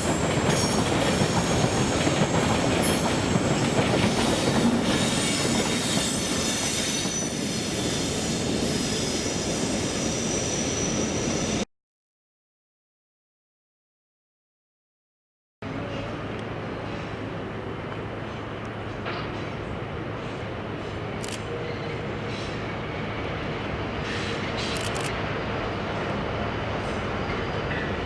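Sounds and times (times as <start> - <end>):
freight train rumbling past: 0.0 - 11.6, 15.6 - 28.0
train wheels squealing: 0.0 - 11.7, 20.2 - 28.0.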